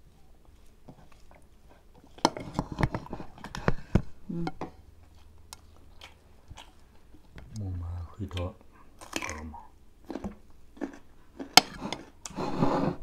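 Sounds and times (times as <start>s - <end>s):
person humming: 4.3s - 4.6s
chewing and mouth smacks: 5.0s - 7.6s.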